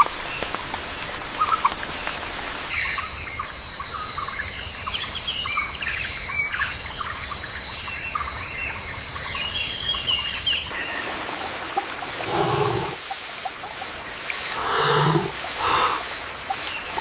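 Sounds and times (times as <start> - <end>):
high insect drone: 2.7 - 13.3, 14.3 - 17.0
birds chirping and calling: 2.7 - 17.0.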